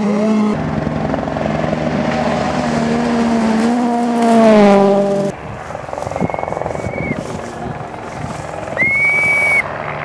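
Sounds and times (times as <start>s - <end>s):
rally car engine at high revs: 0.0s - 5.4s.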